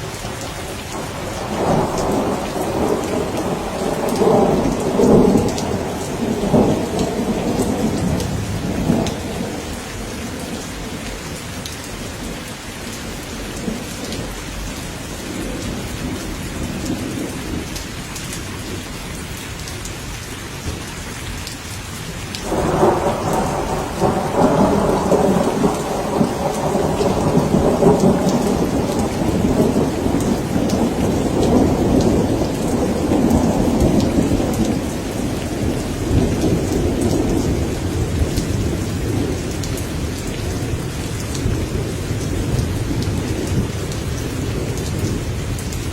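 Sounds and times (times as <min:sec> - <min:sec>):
steady rain: 0:00.0 - 0:45.9
rolling thunder: 0:00.6 - 0:12.2, 0:22.4 - 0:45.9.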